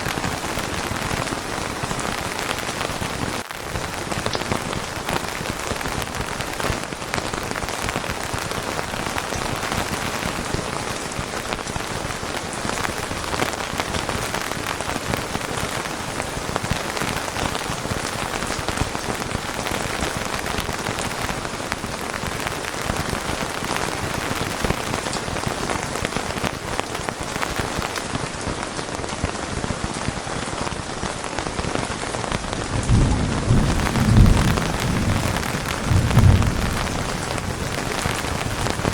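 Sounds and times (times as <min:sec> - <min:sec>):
steady rain falling: 0:00.0 - 0:38.9
thunder rumble: 0:32.6 - 0:38.9.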